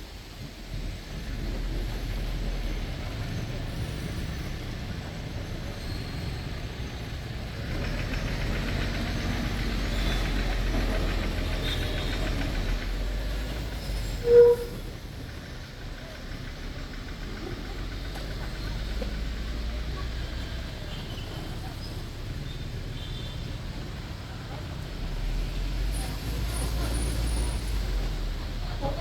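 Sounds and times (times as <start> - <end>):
bus engine rumble and hiss: 0.0 - 29.0
vehicle horn beep: 14.2 - 14.9.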